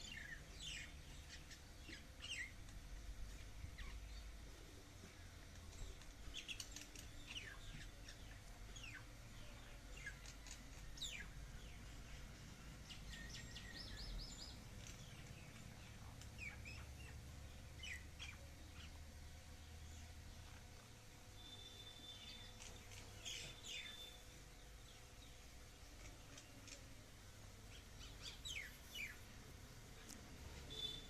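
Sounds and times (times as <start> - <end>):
low steady hum: 0.0 - 31.0
faint bird chirps: 19.6 - 27.0, 30.0 - 31.0
bird trill: 30.7 - 31.0.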